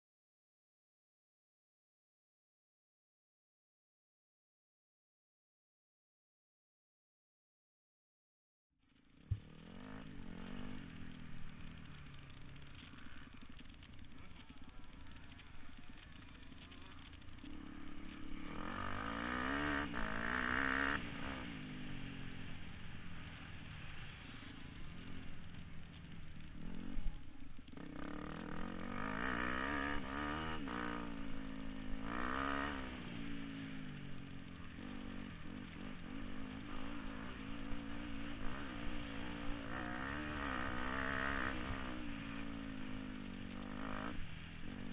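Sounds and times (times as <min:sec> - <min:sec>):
motocross bikes revving: 0:09.1 - 0:44.9.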